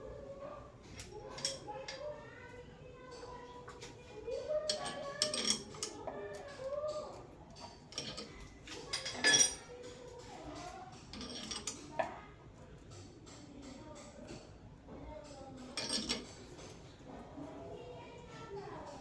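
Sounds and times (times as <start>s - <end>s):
metal tools clinking: 0.9s - 2.1s, 4.7s - 6.1s, 7.6s - 11.8s, 15.6s - 16.7s.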